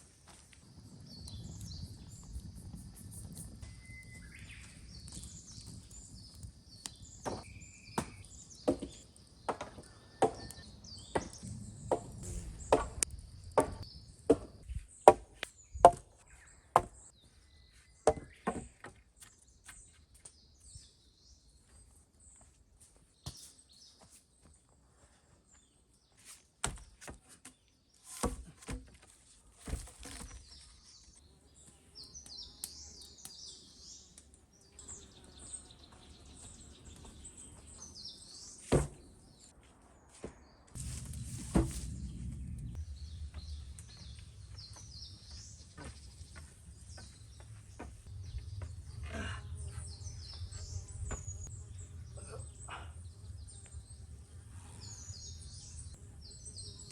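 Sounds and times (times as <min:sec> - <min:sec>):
birds chirping: 0:00.3 - 0:22.6, 0:30.0 - 0:40.7, 0:41.9 - 0:56.9
chopping strikes on wood: 0:07.2 - 0:10.6, 0:13.6 - 0:16.1, 0:16.8 - 0:17.0, 0:26.6 - 0:27.6, 0:38.7 - 0:39.0.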